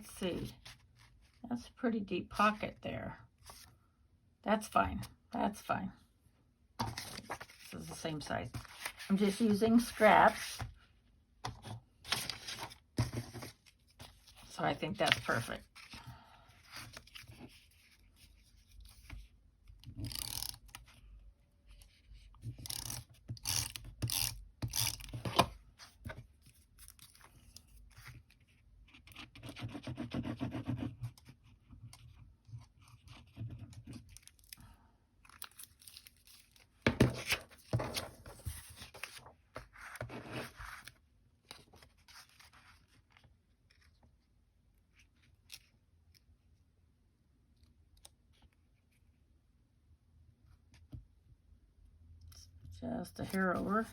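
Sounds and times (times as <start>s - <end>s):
paper rustling and rubbing: 6.8s - 10.7s, 11.6s - 14.5s, 36.1s - 43.9s.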